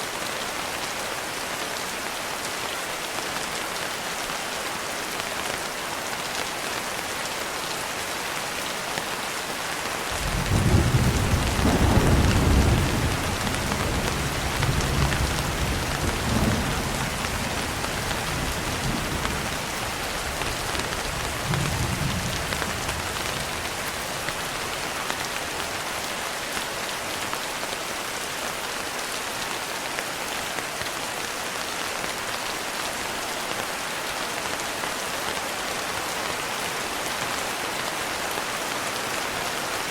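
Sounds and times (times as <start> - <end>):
rain pattering on a window: 0.9 - 39.9
thunder rumbling: 10.2 - 19.5.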